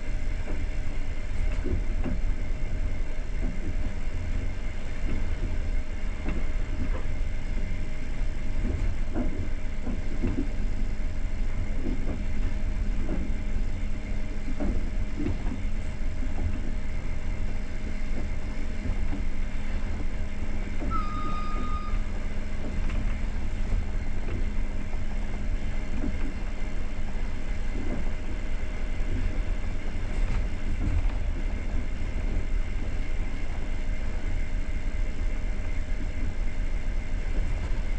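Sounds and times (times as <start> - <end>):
train wheels rumbling on rails: 0.0 - 37.9
brief high tone: 20.9 - 22.1.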